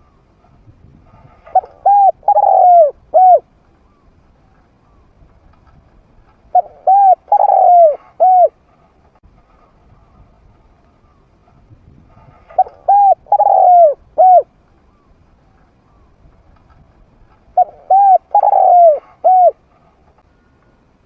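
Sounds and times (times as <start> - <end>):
dove cooing: 1.4 - 4.0, 6.5 - 8.6, 12.5 - 14.5, 17.6 - 19.7.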